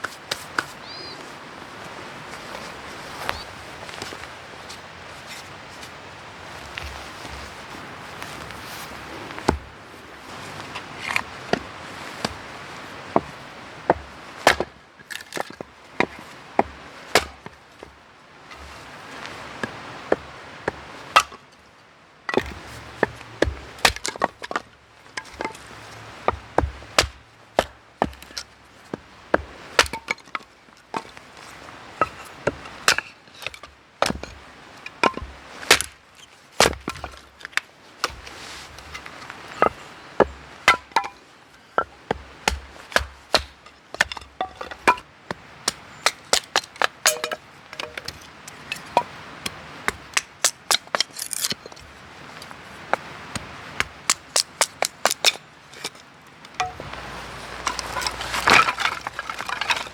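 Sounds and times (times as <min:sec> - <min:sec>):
chopping wood: 0:13.9 - 0:17.9, 0:19.6 - 0:21.4, 0:22.3 - 0:24.6, 0:25.2 - 0:31.1, 0:35.0 - 0:36.0, 0:36.6 - 0:41.2, 0:41.8 - 0:48.2, 0:56.6 - 0:59.9.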